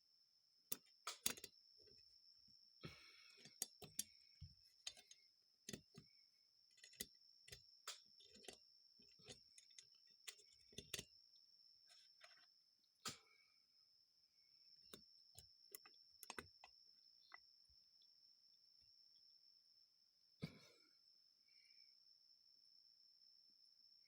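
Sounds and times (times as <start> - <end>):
small metal parts clicking: 0.7 - 1.6, 3.3 - 4.2, 4.8 - 6.1, 6.7 - 11.1.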